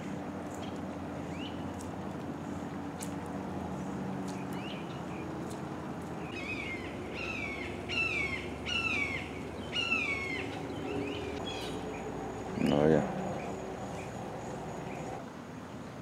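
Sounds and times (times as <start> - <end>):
harsh descending bird calls: 6.3 - 15.2
short rising bird chirps: 6.3 - 15.2.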